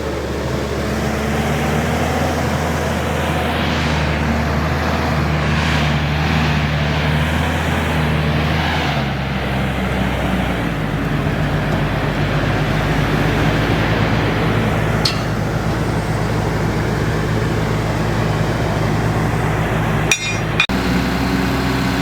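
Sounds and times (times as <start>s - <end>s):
heavy diesel machinery running: 0.0s - 22.0s.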